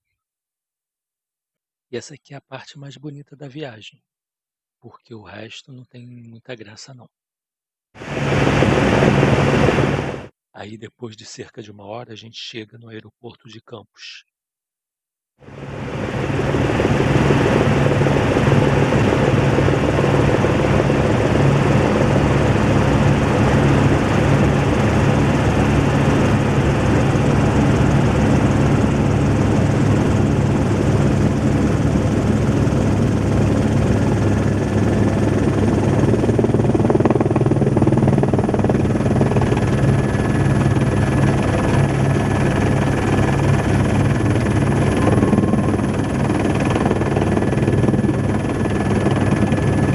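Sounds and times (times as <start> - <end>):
helicopter rotor and engine drone: 8.0 - 10.3, 15.4 - 49.9
faint high whine: 43.9 - 47.2.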